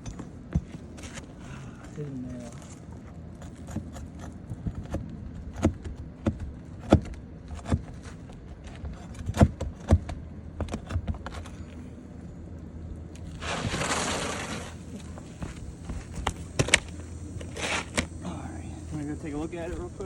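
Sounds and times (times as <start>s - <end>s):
scraping rush: 13.3s - 14.9s.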